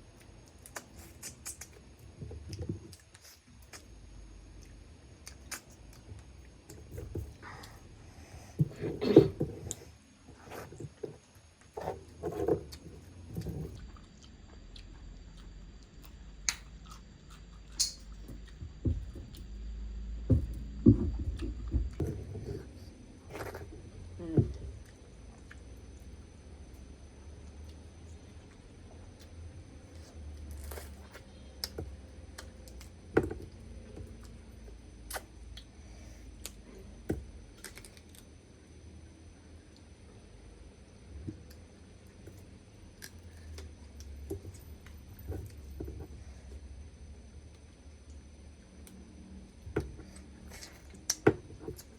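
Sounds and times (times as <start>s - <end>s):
person chewing food: 8.4s - 19.5s.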